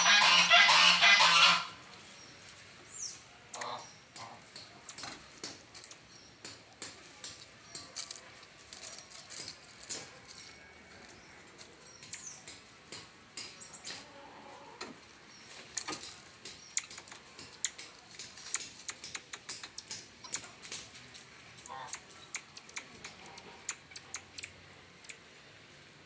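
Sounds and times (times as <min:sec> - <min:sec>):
marmosets chirping and squeaking: 0:11.9 - 0:12.6, 0:15.4 - 0:20.6, 0:21.7 - 0:25.2.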